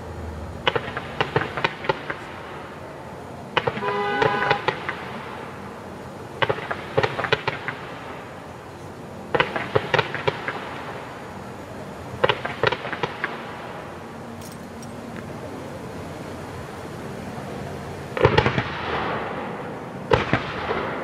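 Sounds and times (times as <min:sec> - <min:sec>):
fireworks bursting with sharp bangs: 0:00.7 - 0:02.8, 0:03.5 - 0:14.0, 0:18.1 - 0:21.0.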